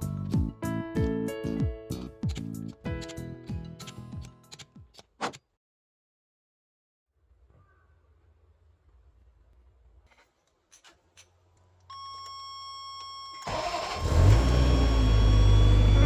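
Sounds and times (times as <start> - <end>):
car engine starting and running: 13.4 - 16.0
steady beep: 14.6 - 16.0.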